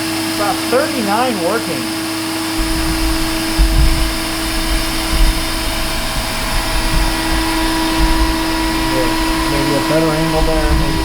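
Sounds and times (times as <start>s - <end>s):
vacuum cleaner motor whine: 0.0s - 11.0s
low rumbling and bumps: 2.6s - 11.0s.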